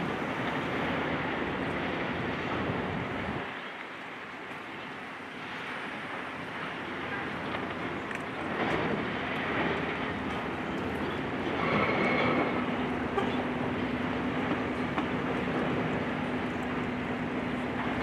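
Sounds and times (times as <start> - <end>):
heavy engine running: 6.6 - 18.0.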